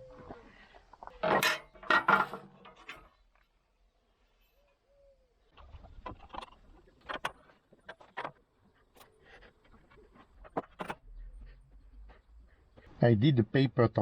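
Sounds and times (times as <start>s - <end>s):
metal tools knocking and clinking: 1.2s - 3.0s.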